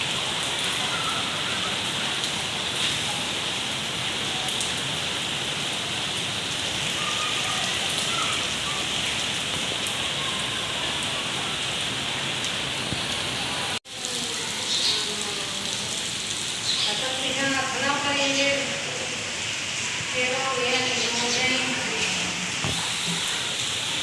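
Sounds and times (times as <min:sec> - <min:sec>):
rain pattering on surfaces: 0:00.0 - 0:24.0.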